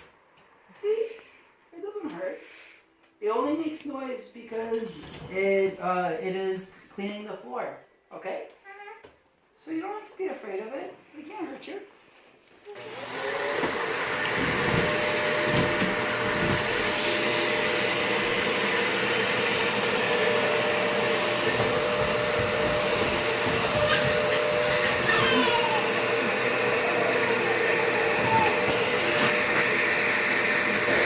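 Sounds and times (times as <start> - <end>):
vacuum cleaner running: 12.6 - 31.0.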